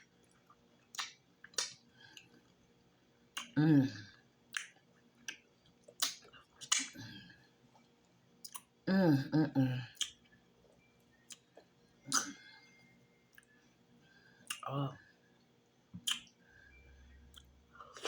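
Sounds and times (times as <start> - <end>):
wet lip smacks and chewing: 0.9 - 2.4, 3.4 - 3.6, 4.5 - 7.0, 8.4 - 8.7, 11.3 - 12.4, 16.0 - 16.3.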